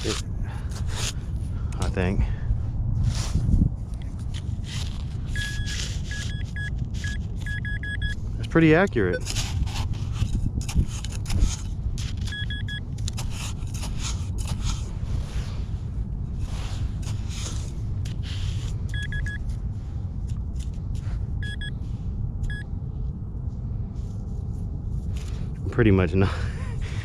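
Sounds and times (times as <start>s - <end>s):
scraping noises: 0.0s - 1.2s, 3.0s - 7.5s, 8.6s - 19.6s
steady low rumble: 0.0s - 27.0s
metal detector rapid beeps: 5.3s - 8.2s, 12.2s - 12.8s, 18.9s - 19.4s, 21.4s - 21.8s, 22.4s - 22.6s.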